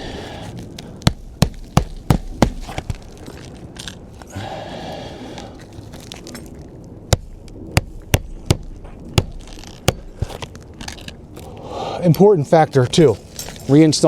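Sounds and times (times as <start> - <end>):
hammer striking nails into shingles: 1.0 - 2.9, 7.1 - 10.2.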